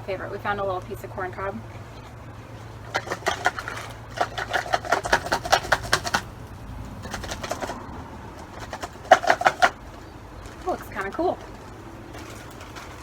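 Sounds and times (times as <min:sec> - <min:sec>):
sticks rattling in plastic bottle: 0:02.8 - 0:06.4, 0:07.0 - 0:13.0.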